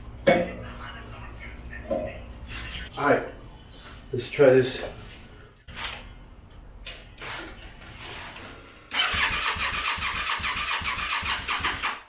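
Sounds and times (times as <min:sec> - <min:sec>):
motorcycle starter cranking engine: 0:08.9 - 0:12.0.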